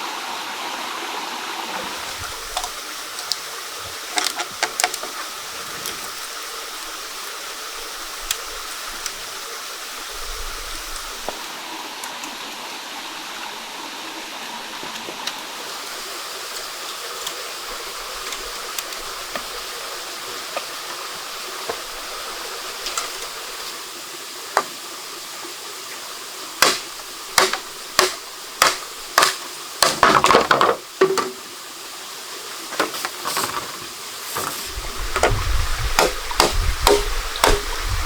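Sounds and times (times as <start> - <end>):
water rushing: 0.0 - 38.0
sharp knocks: 27.4 - 31.4, 36.0 - 37.8.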